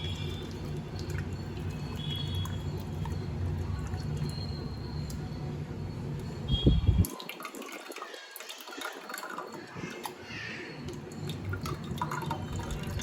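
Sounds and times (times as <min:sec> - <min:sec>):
water splashing and dripping: 0:00.0 - 0:05.2, 0:07.0 - 0:10.2.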